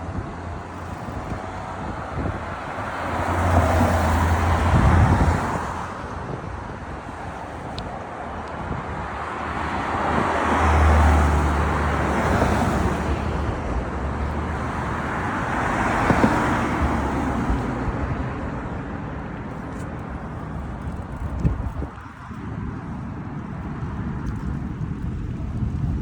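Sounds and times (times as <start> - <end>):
cars passing close by: 0.0 - 26.0.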